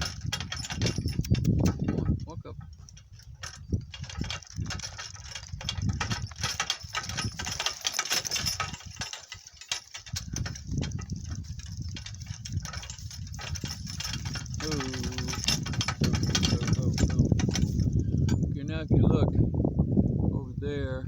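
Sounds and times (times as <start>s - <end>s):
cart rattling and knocking: 0.0s - 18.8s
low rumble of cart wheels: 0.0s - 20.3s.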